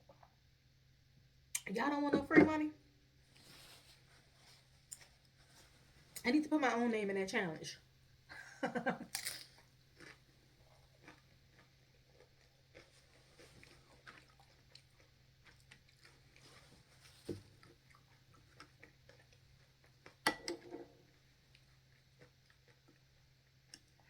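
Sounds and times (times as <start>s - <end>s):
low steady hum: 0.0s - 24.0s
mouth clicks and crunches: 9.5s - 16.4s
person chewing food: 9.5s - 24.0s.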